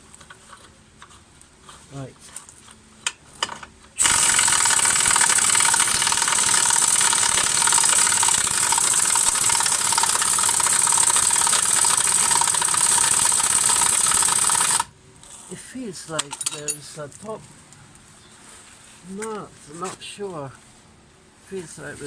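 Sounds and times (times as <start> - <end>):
impact wrench hammering: 4.0 - 14.9.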